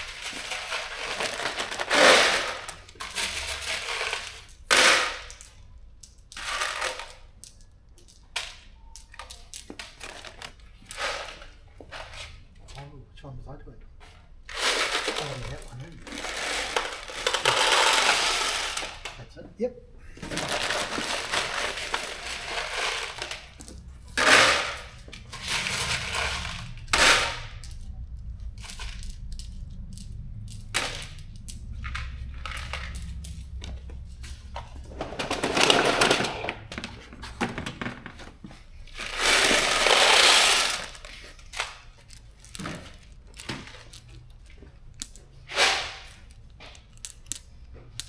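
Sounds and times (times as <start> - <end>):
metal bolts clattering: 0.0 - 11.6, 20.6 - 37.4, 38.9 - 48.0.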